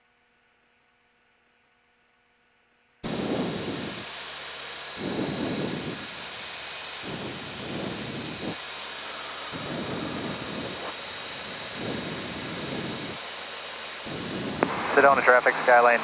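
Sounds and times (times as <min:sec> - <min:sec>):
wind buffeting microphone: 0:03.0 - 0:04.2, 0:05.0 - 0:06.3, 0:07.0 - 0:08.6, 0:09.4 - 0:13.4, 0:14.0 - 0:15.4
airflow and engine hiss: 0:03.0 - 0:16.0.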